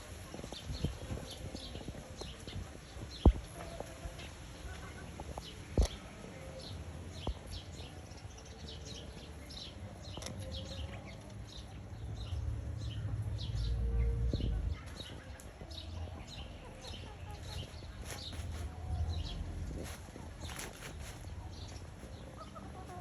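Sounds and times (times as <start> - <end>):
chicks peeping: 9.6 - 23.0.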